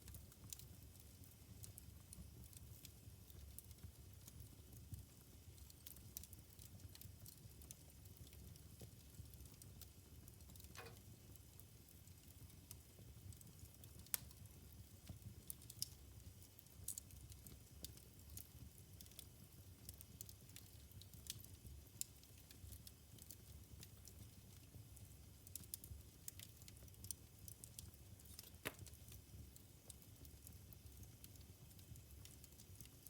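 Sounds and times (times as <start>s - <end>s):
wood fire crackling and popping: 0.0s - 33.0s.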